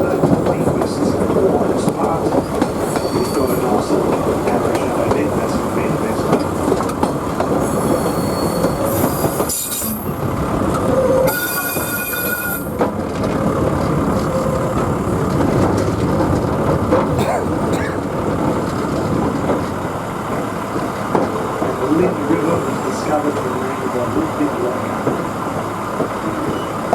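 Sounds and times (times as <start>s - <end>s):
rail motor rumbling: 0.0s - 26.9s
train wheels squealing: 2.3s - 3.9s, 7.6s - 10.2s, 10.9s - 12.8s, 26.4s - 26.9s.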